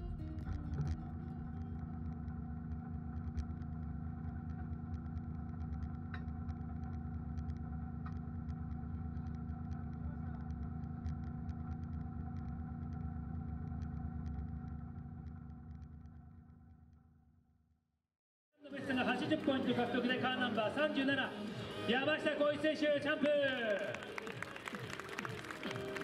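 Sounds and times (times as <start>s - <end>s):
car engine running low revs: 0.0s - 17.0s.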